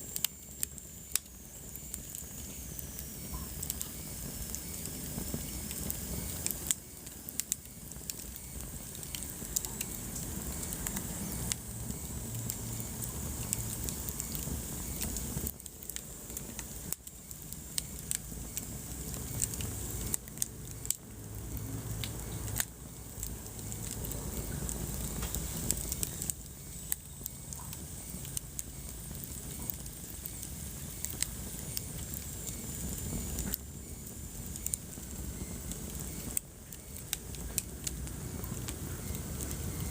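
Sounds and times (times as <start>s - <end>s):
burning logs crackling and popping: 0.0s - 39.9s
flames rumbling and hissing: 0.0s - 39.9s.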